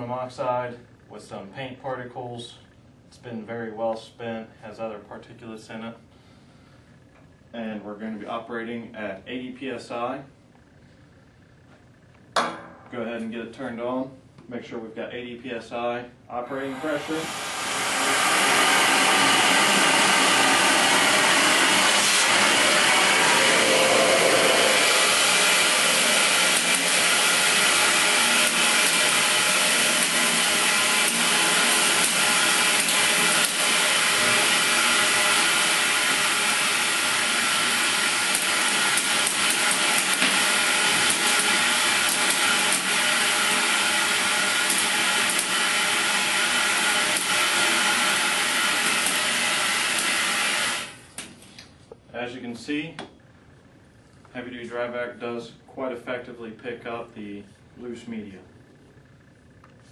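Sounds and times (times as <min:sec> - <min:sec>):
industrial vacuum air rush: 0:16.3 - 0:51.6.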